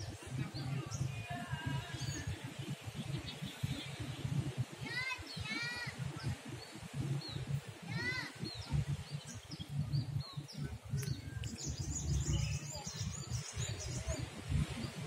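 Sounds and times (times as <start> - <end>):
birds chirping: 0.0 - 15.0
low outdoor background rumble: 0.0 - 15.0.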